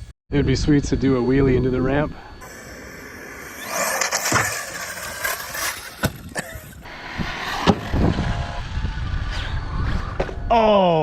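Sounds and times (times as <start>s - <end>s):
electric motor whine: 1.6s - 10.5s
tyres on ground: 2.4s - 8.7s.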